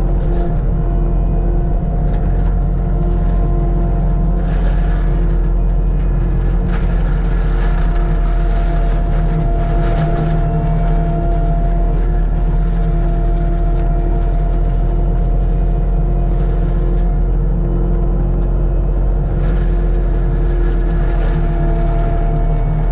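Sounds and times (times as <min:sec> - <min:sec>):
constant machine whine: 0:00.0 - 0:22.9
diesel engine running: 0:00.0 - 0:22.9.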